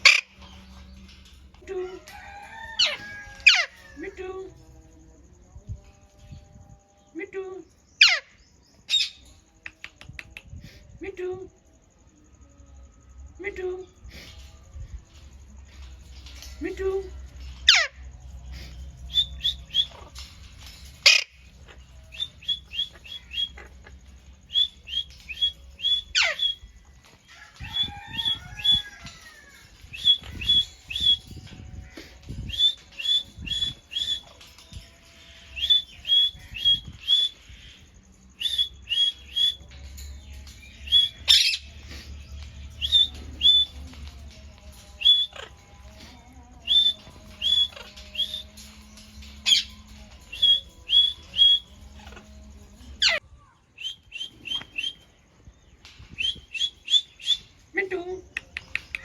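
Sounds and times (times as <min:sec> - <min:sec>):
parrot calling: 0:17.6 - 0:18.0, 0:19.1 - 0:26.6.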